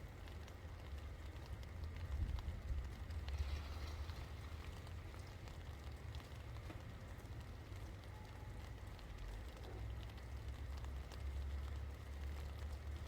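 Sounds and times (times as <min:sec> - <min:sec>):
rain drops pattering: 0:00.0 - 0:13.0.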